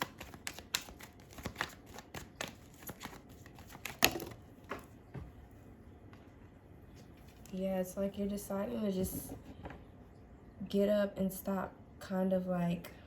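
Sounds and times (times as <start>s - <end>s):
cards shuffling: 0.0s - 4.4s.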